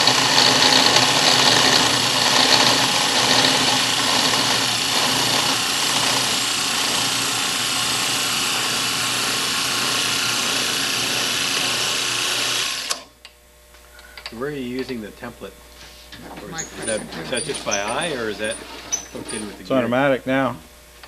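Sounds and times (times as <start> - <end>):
cutter grinding rubber: 0.0 - 13.1, 16.4 - 19.8.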